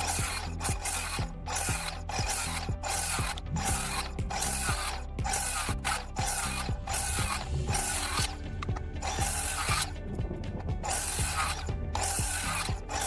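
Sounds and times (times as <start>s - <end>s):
circular saw cutting lumber: 0.0s - 13.0s.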